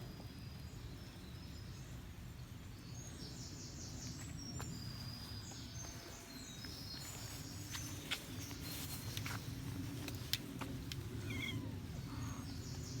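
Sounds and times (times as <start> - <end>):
faint low outdoor rumble: 0.0 - 13.0
birds singing: 11.0 - 13.0.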